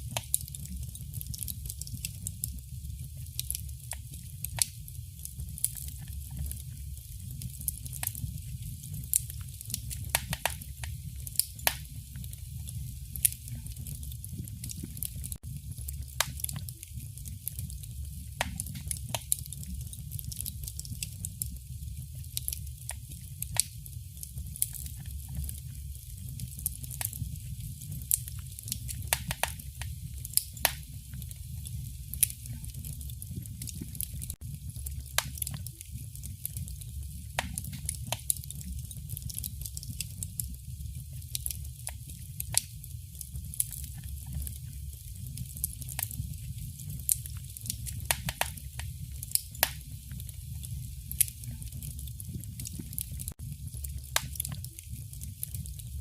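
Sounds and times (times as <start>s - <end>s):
wood fire crackling: 0.0s - 56.0s
steady low rumble: 30.8s - 35.2s.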